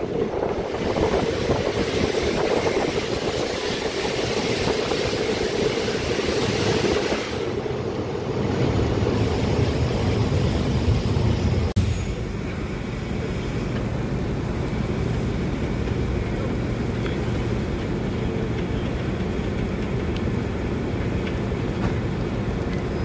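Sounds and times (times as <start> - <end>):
train wheels rumbling: 0.0 - 23.0.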